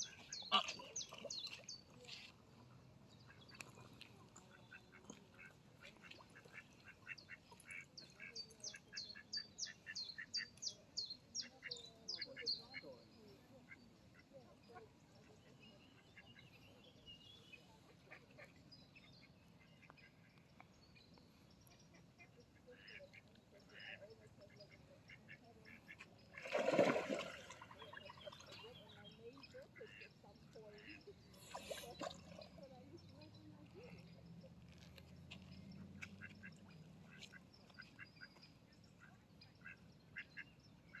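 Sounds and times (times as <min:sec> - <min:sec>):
ducks quacking: 0:00.0 - 0:01.6, 0:22.2 - 0:32.0
ducks calling faintly: 0:00.0 - 0:41.0.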